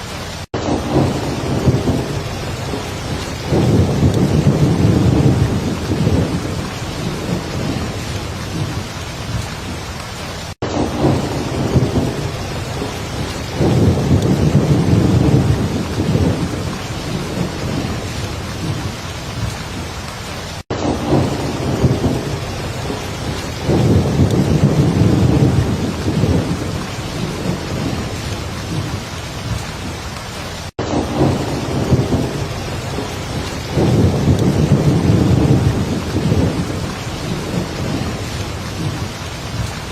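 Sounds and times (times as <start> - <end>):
heavy rain falling: 0.0 - 39.9
low rolling thunder: 0.6 - 9.8, 10.6 - 19.9, 20.7 - 30.0, 30.8 - 39.9.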